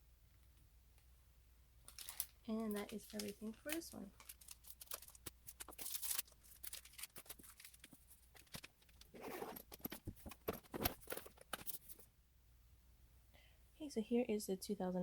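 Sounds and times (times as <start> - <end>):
packaging rustling: 1.8 - 12.1.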